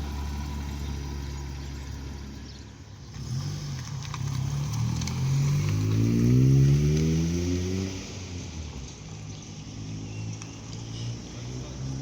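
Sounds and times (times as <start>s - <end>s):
car engine revving: 3.1s - 8.8s.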